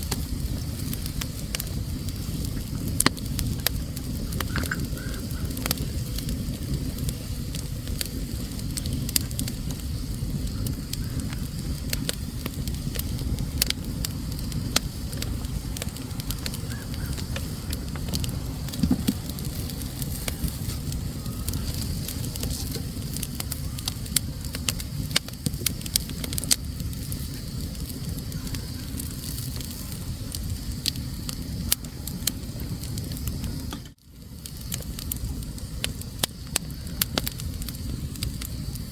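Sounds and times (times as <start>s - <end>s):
fire flames rushing: 0.0s - 38.9s
logs crackling and popping: 0.0s - 38.9s.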